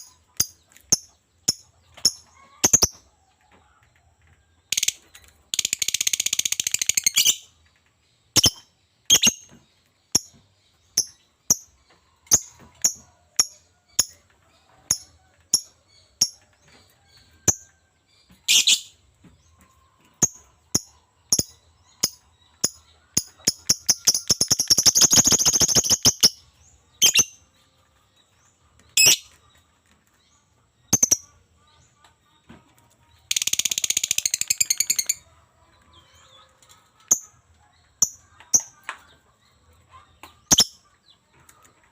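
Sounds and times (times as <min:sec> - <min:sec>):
lovebird chirping: 0:08.3 - 0:14.1, 0:18.4 - 0:19.0, 0:20.2 - 0:27.4, 0:29.0 - 0:29.4
lovebird rapid chattering: 0:08.4 - 0:09.5, 0:23.4 - 0:26.4, 0:27.0 - 0:27.3.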